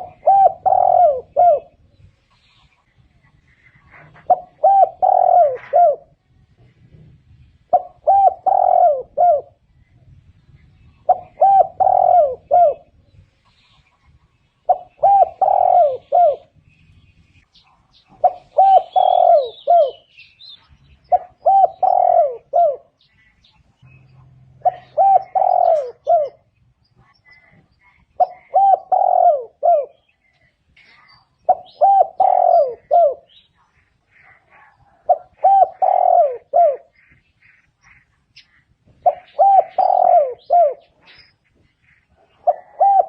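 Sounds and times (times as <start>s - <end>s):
dove cooing: 0.0s - 2.0s, 3.7s - 6.2s, 7.7s - 9.7s, 11.0s - 13.0s, 14.6s - 16.6s, 18.0s - 20.1s, 21.0s - 26.6s, 27.3s - 30.2s, 31.4s - 37.2s, 38.9s - 41.3s, 42.0s - 43.0s
small birds chirping: 0.0s - 43.0s.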